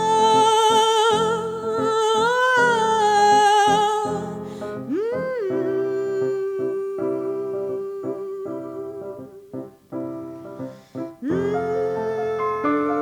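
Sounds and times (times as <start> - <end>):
woman singing wordless note: 0.0 - 9.8, 11.2 - 13.0
piano chords: 0.0 - 13.0.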